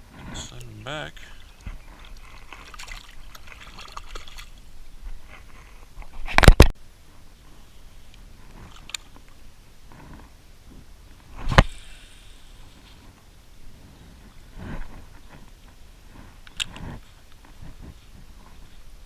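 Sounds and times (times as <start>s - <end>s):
water sloshing and splashing: 0.6s - 5.6s.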